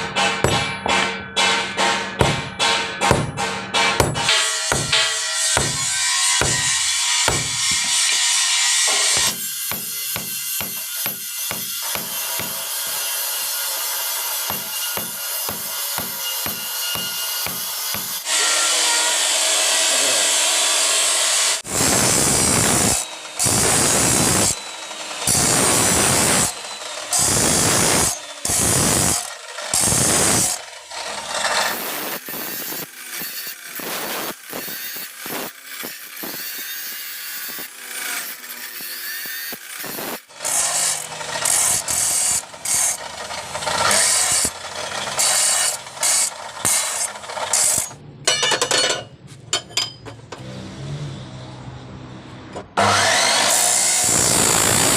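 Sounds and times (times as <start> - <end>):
hand tool rasping on metal: 0.2 - 19.2, 21.6 - 48.4.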